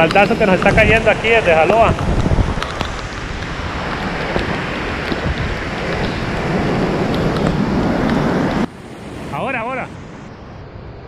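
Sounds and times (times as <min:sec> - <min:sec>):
heavy rain: 0:00.0 - 0:10.3
wind buffeting microphone: 0:00.0 - 0:11.0.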